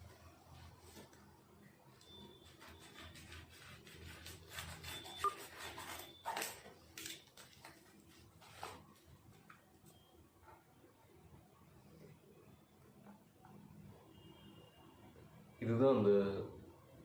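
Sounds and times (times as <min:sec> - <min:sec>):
packaging rustling and scraping: 0:02.4 - 0:09.5.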